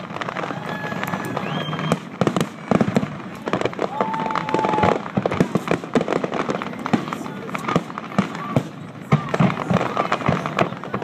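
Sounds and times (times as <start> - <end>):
firework whistles: 0.0 - 6.0
fireworks bangs and crackling: 0.0 - 11.0.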